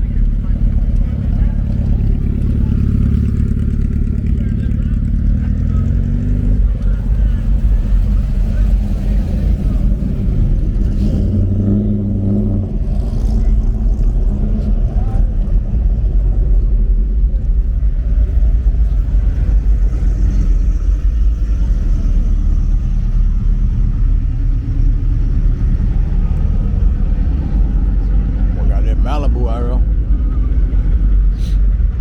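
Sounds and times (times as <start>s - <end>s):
car engine and road noise: 0.0s - 32.0s.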